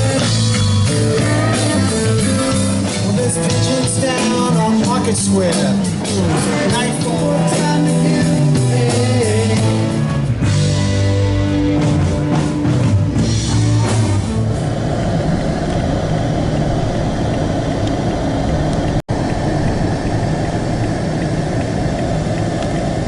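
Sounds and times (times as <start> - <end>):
rock music with guitar and drums: 0.0 - 15.2
car engine idling: 13.2 - 23.0.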